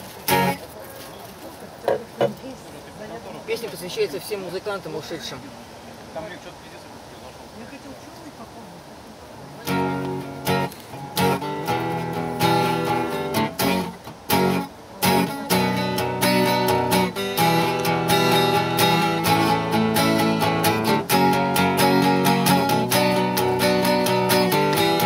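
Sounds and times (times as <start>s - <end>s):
acoustic guitar strumming: 0.2s - 0.7s, 9.6s - 25.0s.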